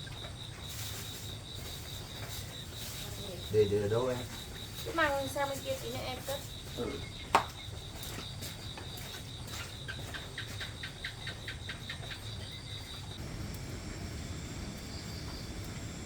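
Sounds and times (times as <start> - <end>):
pulsing insect trill: 0.0 - 16.0
steady low rumble: 13.2 - 16.0.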